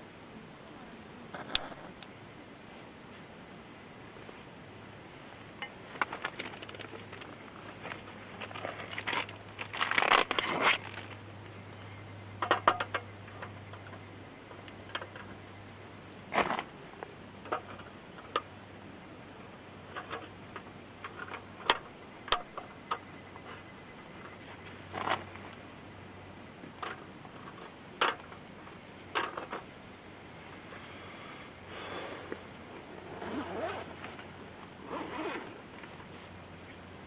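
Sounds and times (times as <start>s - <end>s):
rustling: 4.0s - 15.4s, 26.6s - 37.0s.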